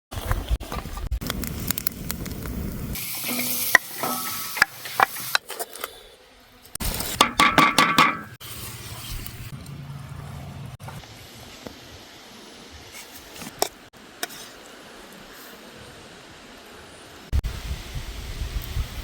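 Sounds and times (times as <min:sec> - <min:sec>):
food sizzling: 0:01.2 - 0:05.6
metal utensil scraping a pan: 0:03.0 - 0:05.4, 0:13.6 - 0:14.6.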